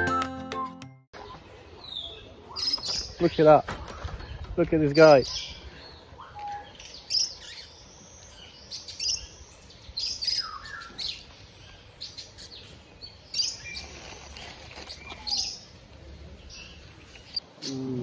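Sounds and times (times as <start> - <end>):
birds chirping and calling: 1.2 - 18.0.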